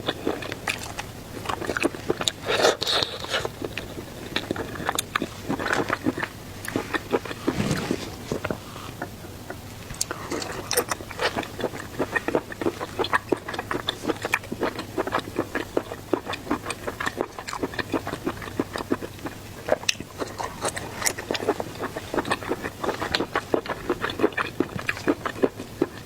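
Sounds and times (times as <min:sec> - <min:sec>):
chewing and mouth smacking: 0:00.0 - 0:26.0.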